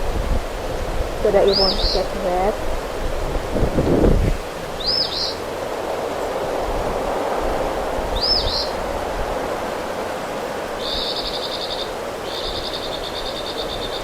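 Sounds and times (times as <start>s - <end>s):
small bird calling: 1.2s - 2.6s, 4.7s - 5.5s, 8.1s - 8.9s, 10.8s - 14.0s.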